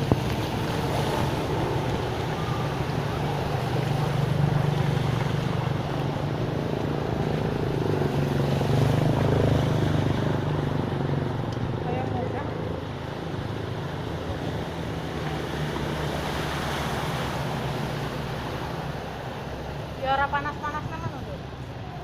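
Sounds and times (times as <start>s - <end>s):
engine droning hum: 0.0s - 22.0s.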